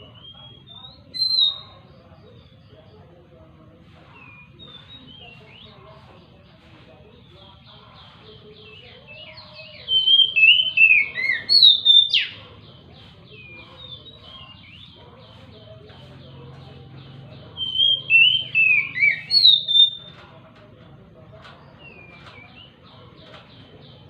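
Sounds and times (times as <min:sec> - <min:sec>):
faint bird chatter: 0:00.0 - 0:24.0
bird singing whistled phrases: 0:00.1 - 0:01.7, 0:08.6 - 0:12.4, 0:17.6 - 0:20.1.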